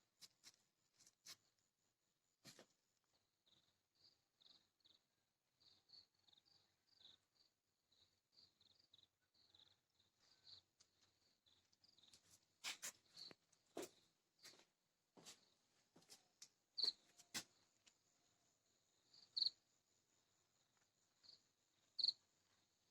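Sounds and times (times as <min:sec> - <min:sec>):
faint high-pitched chirps: 0:02.5 - 0:13.4, 0:16.8 - 0:17.6, 0:18.2 - 0:22.9.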